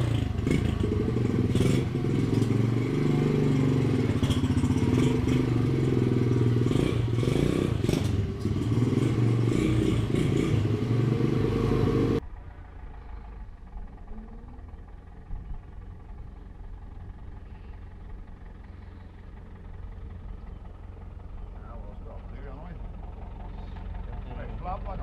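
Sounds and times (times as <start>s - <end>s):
small motorbike engine running: 0.0s - 25.0s
low rumble: 12.2s - 25.0s.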